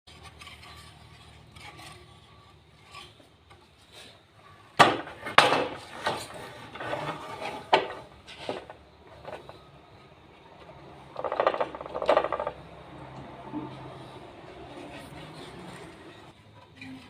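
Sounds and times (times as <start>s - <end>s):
wood rubbing and scraping: 0.1s - 17.0s
sharp wooden knocks: 4.8s - 5.8s, 11.2s - 12.7s.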